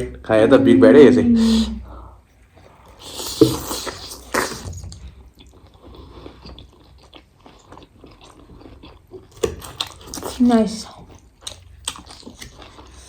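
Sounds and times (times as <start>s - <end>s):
person eating noodles: 2.5s - 10.4s
wet chewing clicks: 2.8s - 13.0s.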